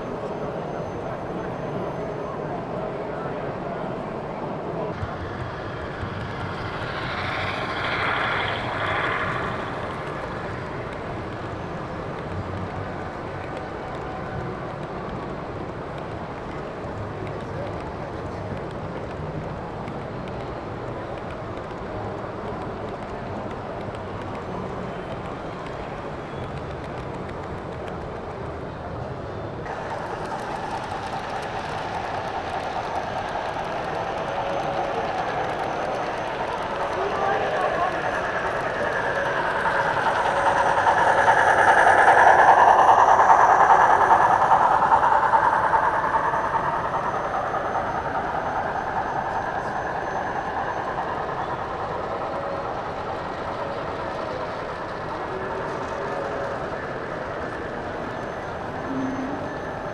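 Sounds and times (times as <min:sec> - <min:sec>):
model train passing: 0:00.0 - 0:59.9
murmur of exhibition hall crowd: 0:00.0 - 0:59.9.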